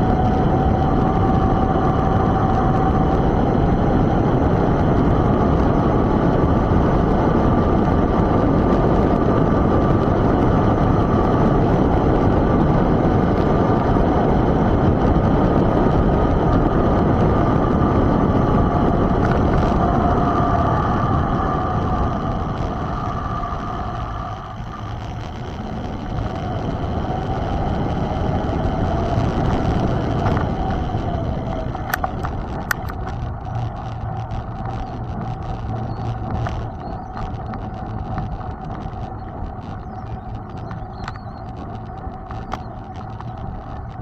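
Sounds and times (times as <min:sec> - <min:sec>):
thin steady whine: 0:00.0 - 0:44.0
wind on microphone: 0:00.0 - 0:44.0
bike rattling clicks: 0:21.5 - 0:44.0.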